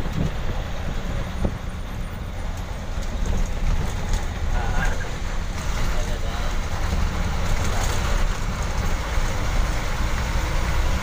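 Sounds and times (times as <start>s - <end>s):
bus engine running: 0.0s - 11.0s
tyres rumbling on rough road: 0.0s - 11.0s.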